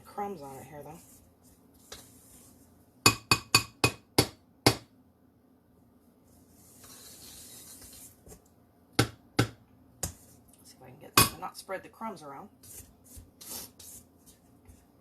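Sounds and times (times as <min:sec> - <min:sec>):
frosting being spread: 0:06.2 - 0:08.4, 0:12.6 - 0:14.9.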